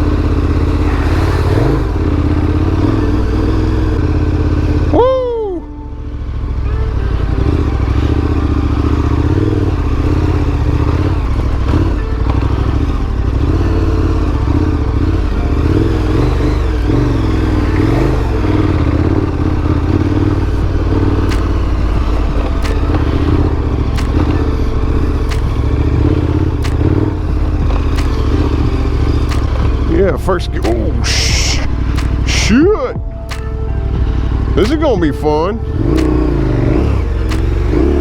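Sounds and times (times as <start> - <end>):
motorcycle engine running: 0.0 - 38.0
clatter: 7.1 - 29.9
sharp ticks: 15.6 - 32.6, 35.8 - 38.0.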